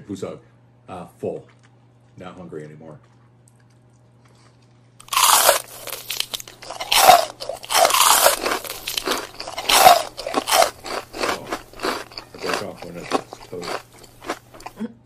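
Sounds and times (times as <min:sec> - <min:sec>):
loud biting and chewing: 0:03.0 - 0:14.8.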